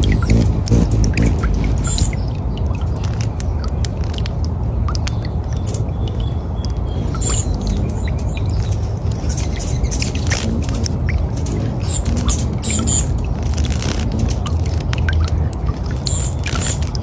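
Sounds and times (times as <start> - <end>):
birds chirping and squawking: 0.0 - 3.4, 5.5 - 14.6, 15.2 - 17.0
steady low rumble: 0.0 - 17.0.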